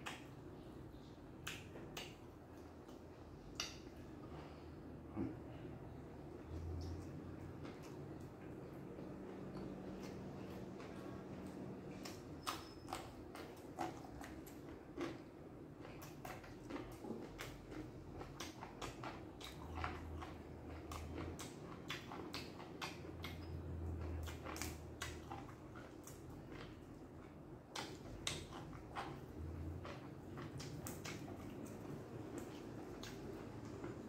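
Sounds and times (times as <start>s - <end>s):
person chewing crunchy vegetables: 0.0s - 34.0s.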